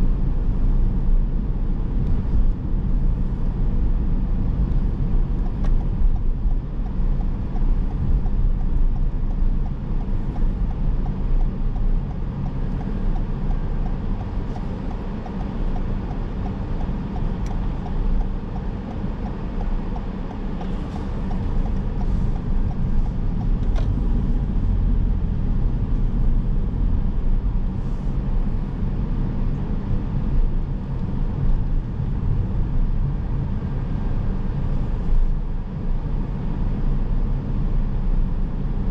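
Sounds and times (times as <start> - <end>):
car road and engine noise: 0.0 - 38.9
faint light ticking: 5.4 - 23.9.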